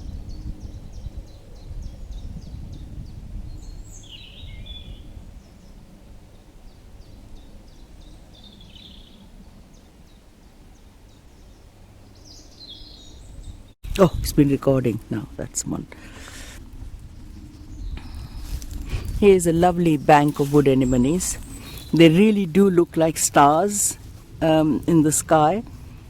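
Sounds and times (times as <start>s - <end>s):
fuller bird calls: 0.0s - 14.2s, 14.8s - 26.0s
small birds singing: 0.0s - 26.0s
steady low rumble: 13.2s - 26.0s.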